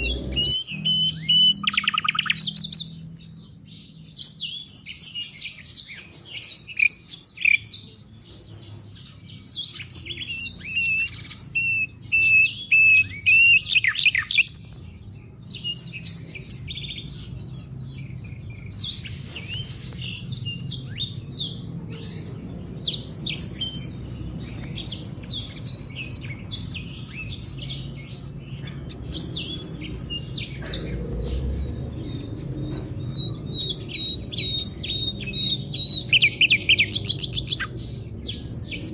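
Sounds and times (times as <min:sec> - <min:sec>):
low bird warbling note: 0:00.0 - 0:01.6
songbird chirping and twittering: 0:00.0 - 0:38.9.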